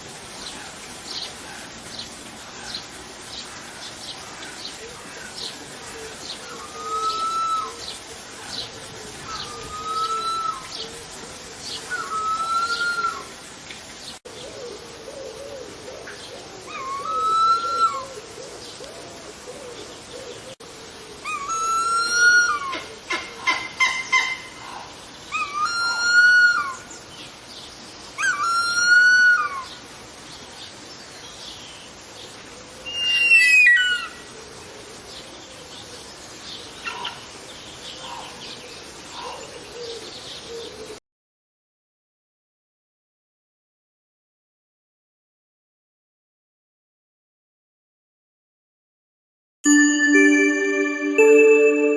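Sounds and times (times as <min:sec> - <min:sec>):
eagle wailing calls: 0:06.6 - 0:07.8, 0:11.9 - 0:13.3, 0:16.7 - 0:18.2, 0:21.2 - 0:22.8, 0:23.4 - 0:26.8, 0:32.9 - 0:34.2
faint warbling background: 0:49.7 - 0:51.9.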